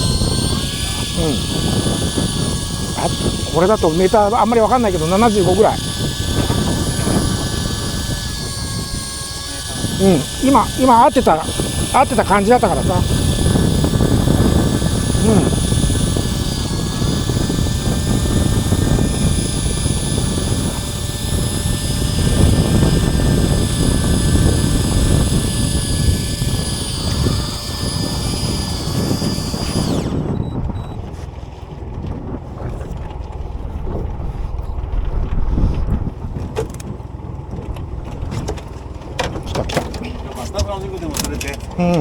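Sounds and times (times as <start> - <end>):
boat engine whine: 0.0 - 42.0
low engine rumble: 29.9 - 42.0.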